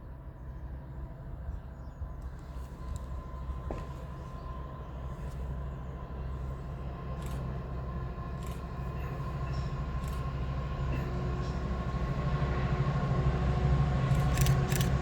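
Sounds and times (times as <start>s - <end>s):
train rumble: 0.0s - 15.0s
light clicks: 14.1s - 15.0s.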